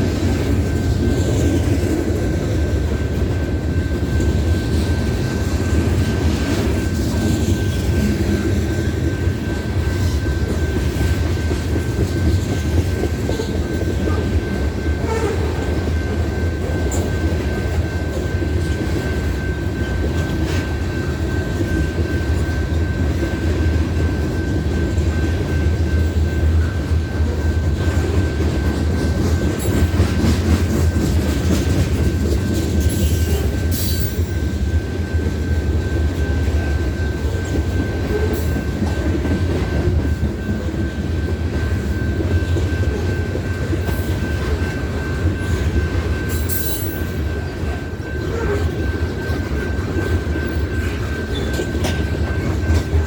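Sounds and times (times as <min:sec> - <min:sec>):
freight train rumbling past: 0:00.0 - 0:53.0
train wheel squeals: 0:00.0 - 0:53.0.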